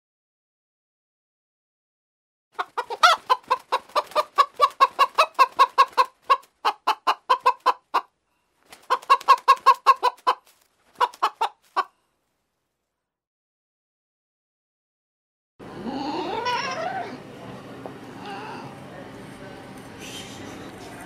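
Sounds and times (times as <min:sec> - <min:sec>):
rooster clucking: 0:02.6 - 0:08.1, 0:08.8 - 0:11.9.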